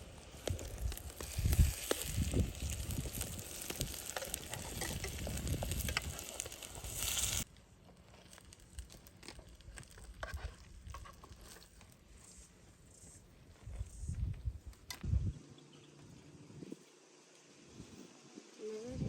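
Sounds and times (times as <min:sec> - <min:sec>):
food sizzling in a pan: 0:00.0 - 0:07.5.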